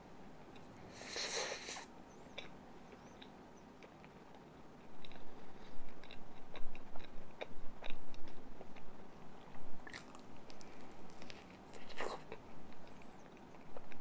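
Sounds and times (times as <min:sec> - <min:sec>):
close-up chewing: 0:02.3 - 0:08.9, 0:09.5 - 0:14.0.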